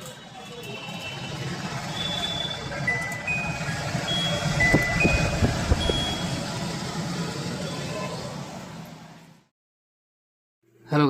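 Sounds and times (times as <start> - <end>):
blower motor whooshing: 1.5 - 9.4.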